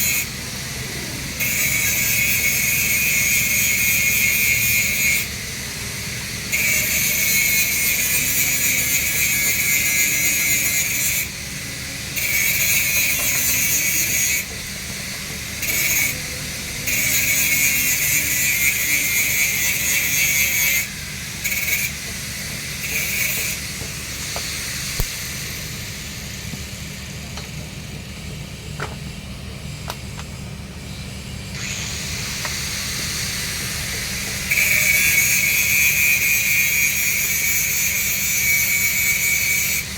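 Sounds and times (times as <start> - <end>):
welding arc crackling and hissing: 0.0 - 28.3, 31.6 - 39.9
low machine hum: 20.9 - 35.0.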